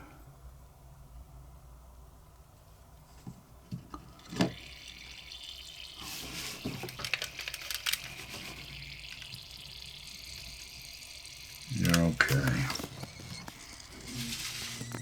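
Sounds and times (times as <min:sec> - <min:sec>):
gas hissing from lighter: 0:04.1 - 0:15.0
small clicks: 0:04.2 - 0:15.0.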